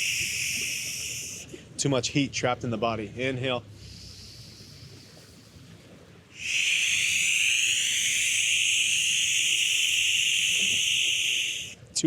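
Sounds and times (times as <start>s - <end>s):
whispered breathy exhale: 0.0s - 1.7s, 3.7s - 5.4s, 6.4s - 11.8s.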